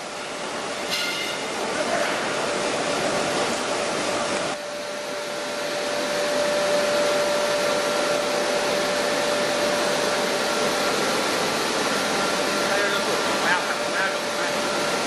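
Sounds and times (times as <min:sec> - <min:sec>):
milling machinery rushing and whining: 0:02.3 - 0:15.0.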